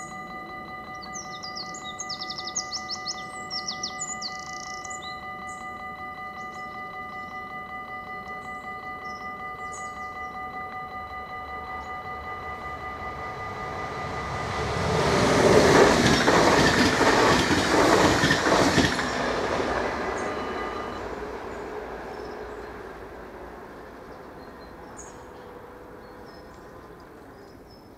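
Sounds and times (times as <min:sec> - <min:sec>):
crossing warning bell ringing: 0:00.0 - 0:27.9
train passing at speed: 0:00.0 - 0:27.9
wheels clattering over rail joints: 0:15.0 - 0:20.4.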